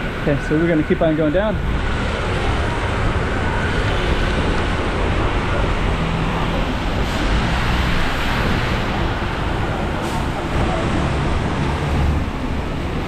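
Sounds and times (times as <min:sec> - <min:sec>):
heavy rain: 0:00.0 - 0:13.0
street traffic: 0:00.0 - 0:13.0.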